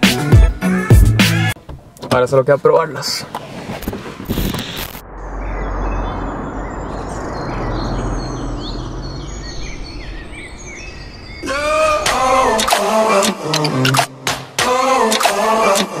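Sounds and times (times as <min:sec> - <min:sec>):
pitched sound with shifting tones: 0:04.0 - 0:14.3
small birds chirping: 0:05.2 - 0:12.6.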